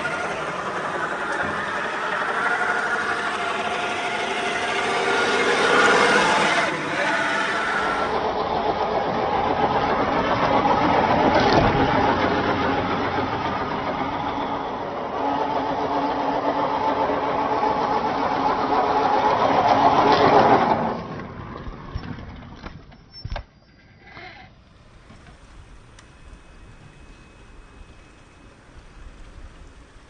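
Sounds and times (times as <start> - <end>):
rc car motor whining: 0.0 - 8.4, 23.8 - 30.0.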